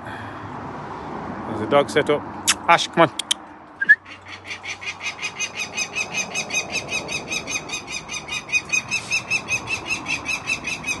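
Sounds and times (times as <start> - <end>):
falcon chattering call: 3.2 - 11.0.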